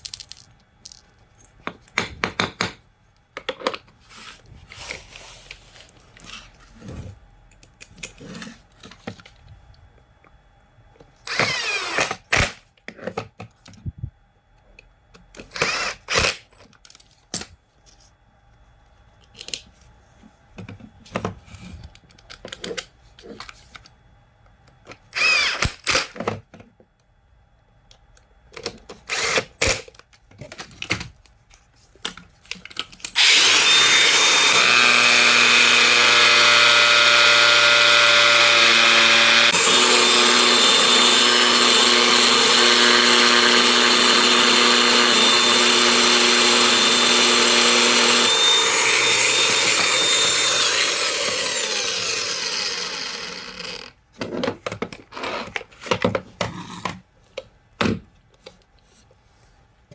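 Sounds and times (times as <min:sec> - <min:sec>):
angle grinder motor running: 0:33.2 - 0:53.9.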